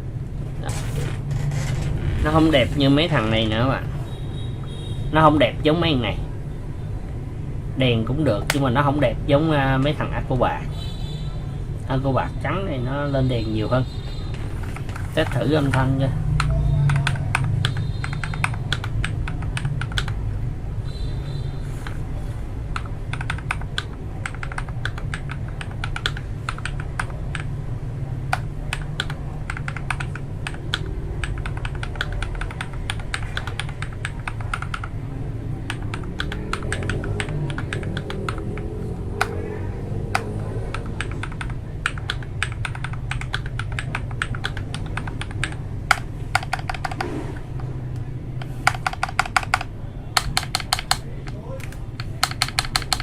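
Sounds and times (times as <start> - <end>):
steady low hum: 0.0 - 12.0
typing on mechanical keyboard: 16.4 - 20.2, 22.7 - 27.5, 28.3 - 35.0, 35.7 - 39.4, 40.1 - 47.1, 48.3 - 53.0.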